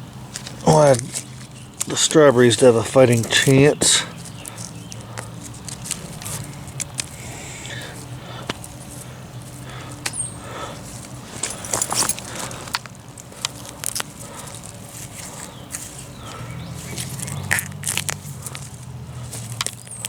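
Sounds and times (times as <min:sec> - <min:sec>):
leaves rustling and crackling: 0:00.0 - 0:20.0
stems snapping and tearing: 0:00.2 - 0:20.0.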